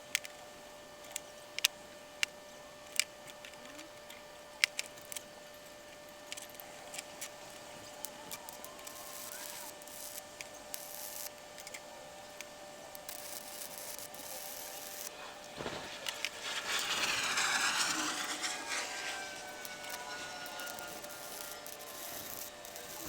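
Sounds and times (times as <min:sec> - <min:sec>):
rasping scraping noise: 0:15.5 - 0:23.0.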